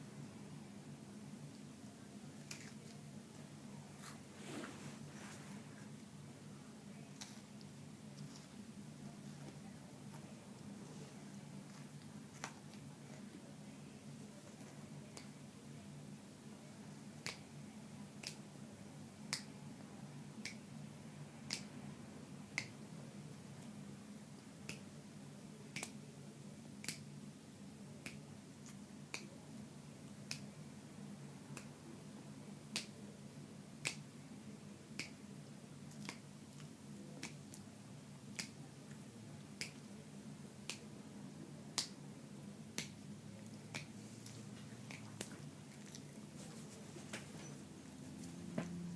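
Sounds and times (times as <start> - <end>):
low steady hum: 0.0 - 48.9
chewing: 44.2 - 46.2.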